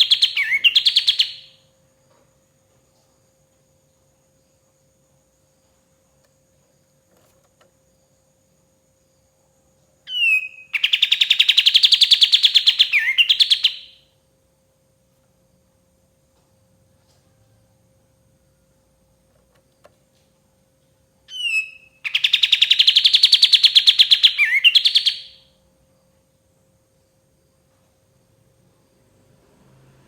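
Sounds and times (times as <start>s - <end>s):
songbird trilling: 0.0s - 1.6s, 10.1s - 14.0s, 21.3s - 25.5s.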